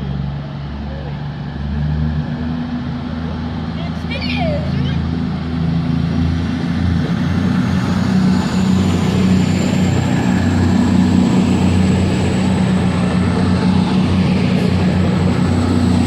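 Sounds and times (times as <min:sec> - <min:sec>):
train diesel engines throbbing: 0:00.0 - 0:16.0
high whine rising in pitch: 0:05.1 - 0:16.0.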